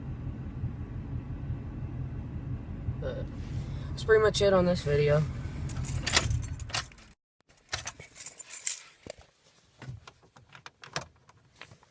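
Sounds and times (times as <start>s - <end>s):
keys jingling: 5.7s - 9.1s.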